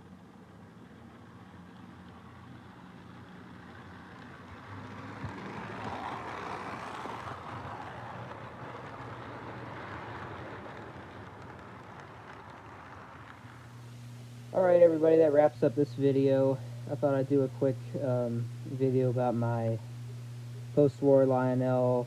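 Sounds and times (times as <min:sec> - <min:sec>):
model train whirring on track: 0:00.0 - 0:22.0.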